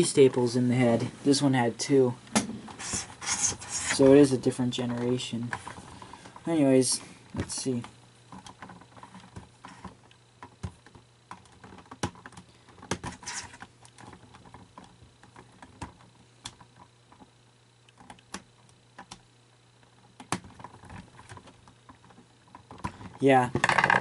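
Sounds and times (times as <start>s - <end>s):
faint steady hum: 0.0s - 24.0s
plastic parts clicking and knocking: 7.4s - 17.3s, 19.8s - 24.0s.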